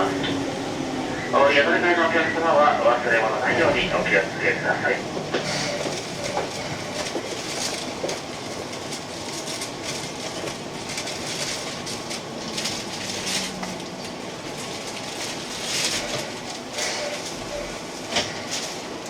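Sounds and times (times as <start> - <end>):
train running on rails: 0.0 - 19.0
wheels clicking over rail joints: 5.1 - 19.0.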